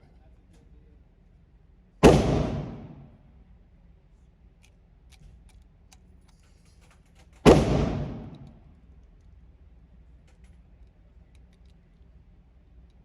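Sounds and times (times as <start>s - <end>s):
pistol shots: 2.0s - 3.2s, 7.4s - 8.6s.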